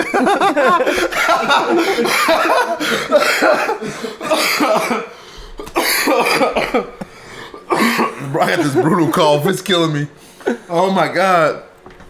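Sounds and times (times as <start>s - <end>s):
man coughing harshly: 1.0s - 9.4s.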